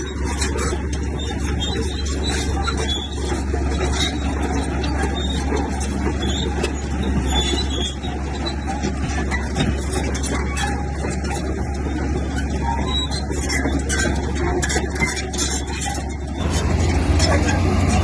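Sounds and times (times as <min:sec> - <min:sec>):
bulldozer diesel engine droning: 0:00.0 - 0:18.0
metallic squeaks and clanks: 0:00.0 - 0:18.0.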